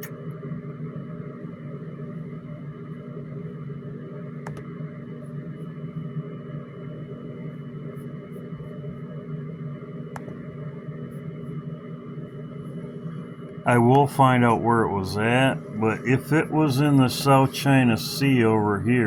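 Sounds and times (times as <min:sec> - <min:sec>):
steady low hum: 0:00.0 - 0:19.0
thin high whine: 0:06.6 - 0:19.0.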